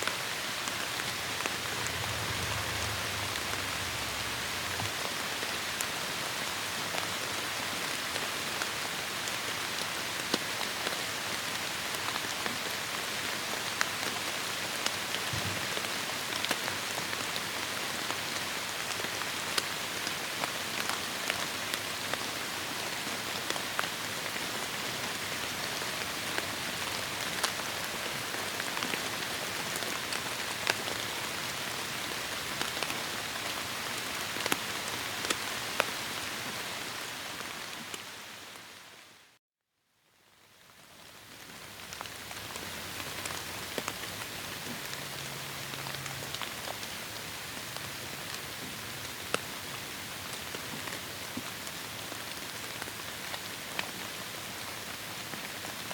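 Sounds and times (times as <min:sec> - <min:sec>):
heavy rain hissing: 0:00.0 - 0:06.9
raindrops ticking on leaves: 0:00.1 - 0:39.0, 0:40.2 - 0:55.9.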